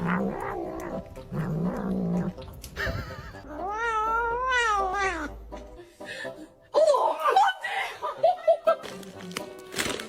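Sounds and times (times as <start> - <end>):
cat yowling: 3.4 - 5.3.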